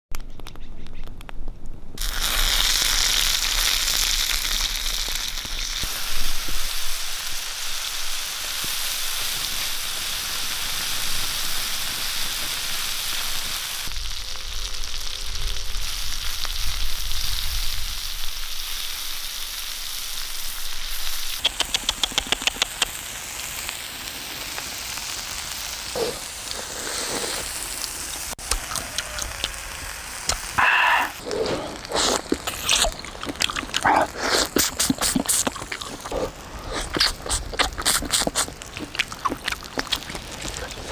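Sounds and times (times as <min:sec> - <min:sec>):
shrimp sizzling in oil: 0:02.0 - 0:40.9
quick clicks: 0:21.4 - 0:22.9
crunchy shrimp bites: 0:31.4 - 0:40.7.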